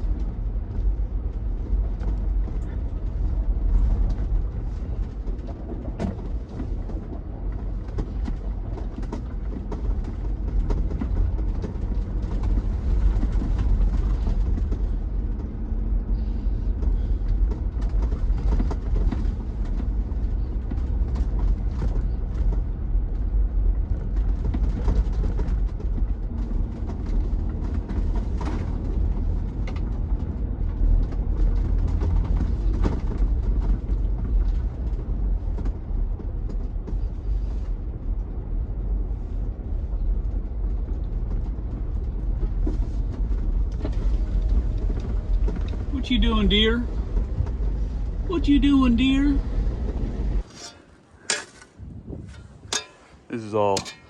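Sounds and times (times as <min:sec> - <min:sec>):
low rumble: 0:00.0 - 0:50.5.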